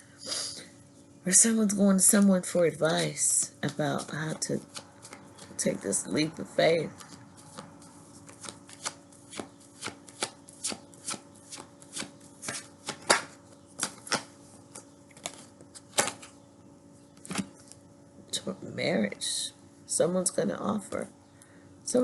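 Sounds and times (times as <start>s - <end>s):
cards shuffled by hand: 3.6s - 5.6s, 6.8s - 16.3s.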